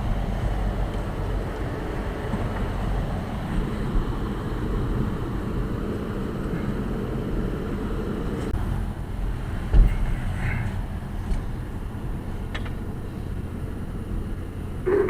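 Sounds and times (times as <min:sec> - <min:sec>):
work vehicle engine rumbling: 0:00.0 - 0:15.0.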